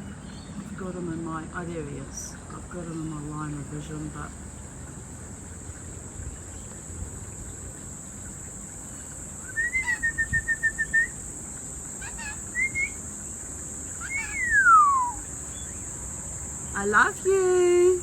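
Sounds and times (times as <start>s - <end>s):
high insect drone: 0.0s - 18.0s
bird whistling calls: 9.4s - 11.2s, 12.0s - 13.1s, 13.9s - 15.9s.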